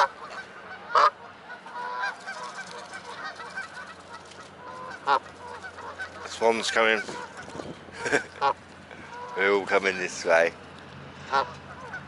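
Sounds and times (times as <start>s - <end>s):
faint waterfowl calls: 0.0s - 9.6s, 11.2s - 12.0s
geese honking: 0.0s - 10.1s, 11.2s - 12.0s.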